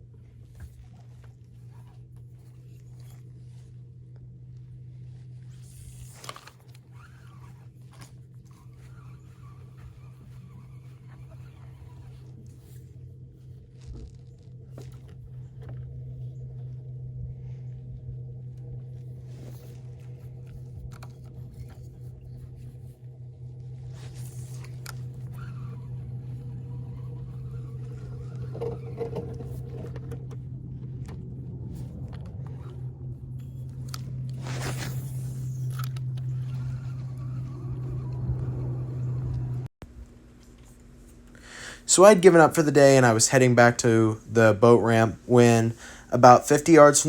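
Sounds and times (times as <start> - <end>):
motor humming: 0.0 - 43.2
handling clicks and scrapes: 0.1 - 41.4.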